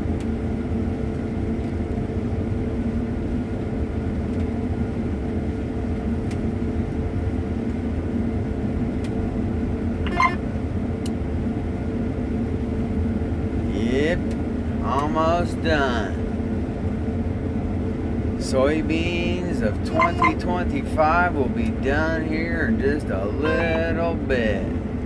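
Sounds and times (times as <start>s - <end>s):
combine harvester drone: 0.0s - 25.0s
high-pitched chirp: 19.9s - 20.5s.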